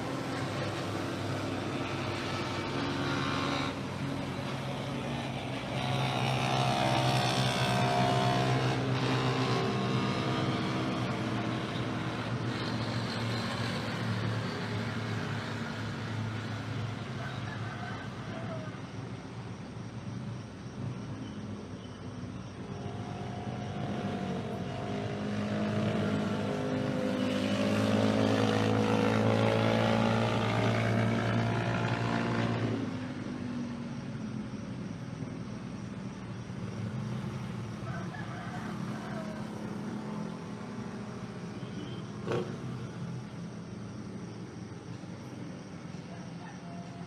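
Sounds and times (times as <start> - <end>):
engine passing by: 0.0 - 18.7, 22.6 - 34.9, 35.6 - 46.5.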